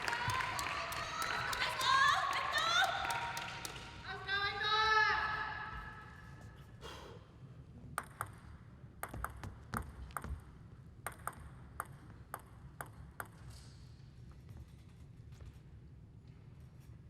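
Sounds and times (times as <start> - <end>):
low hall hum: 0.0 - 17.0
table tennis ball pinging: 8.0 - 13.6.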